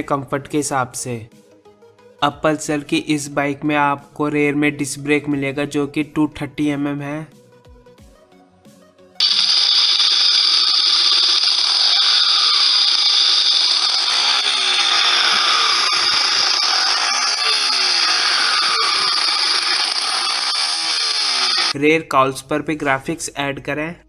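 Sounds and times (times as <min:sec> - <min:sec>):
power tool whirring: 0:09.2 - 0:21.8.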